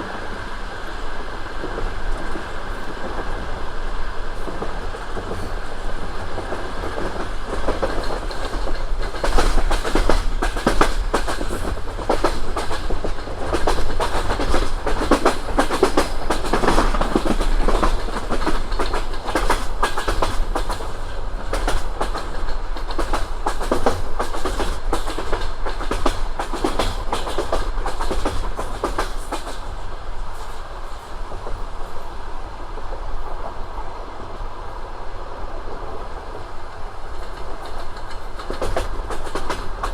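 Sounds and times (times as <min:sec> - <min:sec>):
train wheels clattering over rail joints: 0:04.3 - 0:31.6, 0:37.0 - 0:39.9.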